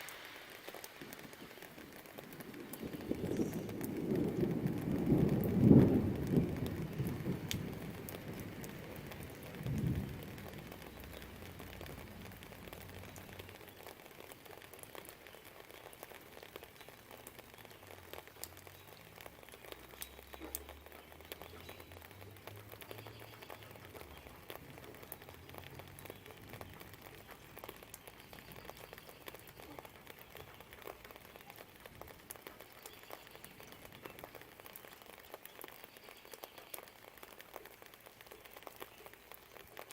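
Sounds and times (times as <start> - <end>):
light rain with drips: 0.0 - 39.9
distant thunder rumble: 0.6 - 14.0.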